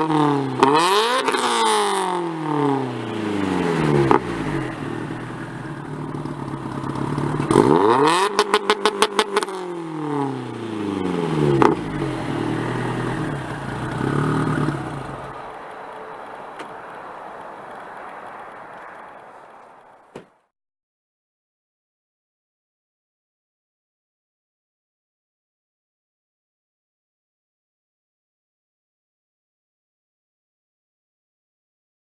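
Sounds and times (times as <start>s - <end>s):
car exhaust revving: 0.0s - 20.1s
rapid stutter of exhaust pulses: 0.0s - 20.2s.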